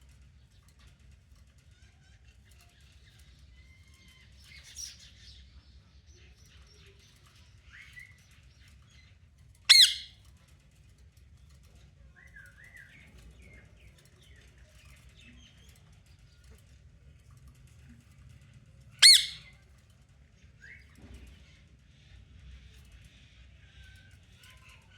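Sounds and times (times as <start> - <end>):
parrot chirping and warbling: 9.7 - 10.2, 19.0 - 19.5
parrot squawk: 9.7 - 10.2, 19.0 - 19.5.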